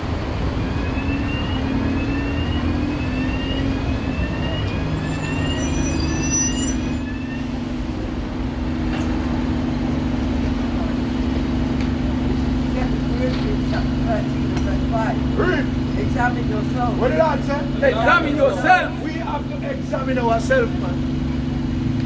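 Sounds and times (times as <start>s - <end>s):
vehicle engine droning: 0.0s - 22.0s
loud high squeal: 0.1s - 7.9s
short rising chirps: 0.6s - 7.6s.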